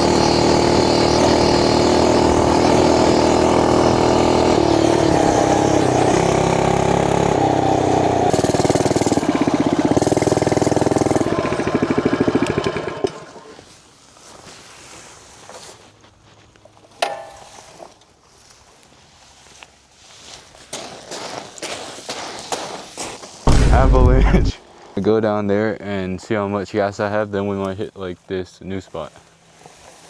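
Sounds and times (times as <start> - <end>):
mini bike engine running: 0.0 - 13.5
sharp knock: 23.5 - 24.5.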